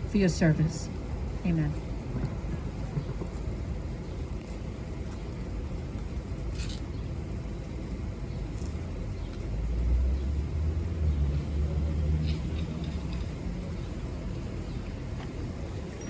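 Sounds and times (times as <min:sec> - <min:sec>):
vehicle passing rumble: 0:00.0 - 0:16.0.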